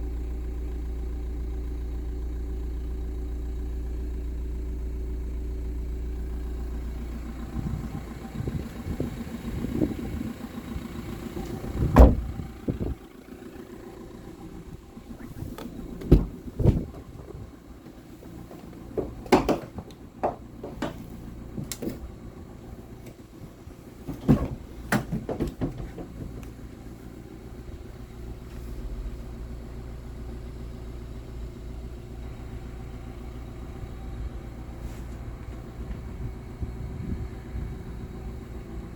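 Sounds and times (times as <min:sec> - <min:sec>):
diesel engine idling: 0:00.0 - 0:38.9
sharp knocks and clunks: 0:11.3 - 0:12.9, 0:15.2 - 0:22.3, 0:22.9 - 0:27.0.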